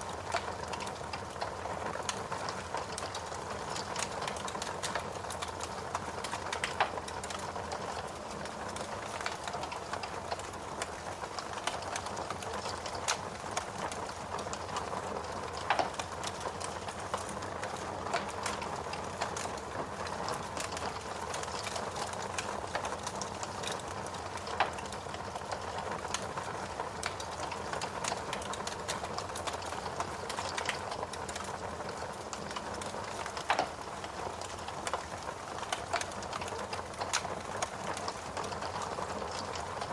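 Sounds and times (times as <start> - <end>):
steady rain: 0.0 - 39.9
wood fire crackling: 0.0 - 39.9
fire pops: 11.5 - 26.3, 27.0 - 39.5.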